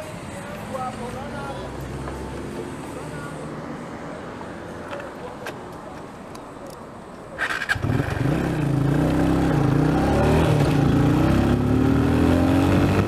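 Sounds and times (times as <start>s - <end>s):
motorcycle engine revving: 7.4s - 13.0s.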